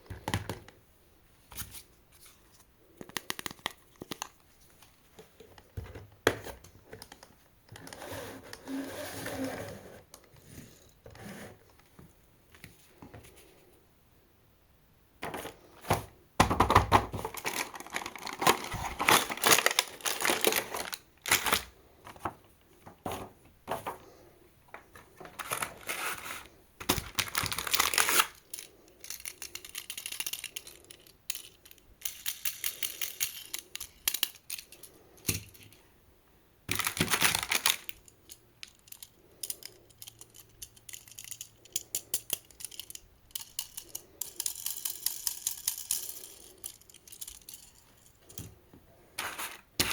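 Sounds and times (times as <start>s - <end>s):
toy cars clattering and clicking: 25.3s - 35.8s, 36.7s - 48.6s.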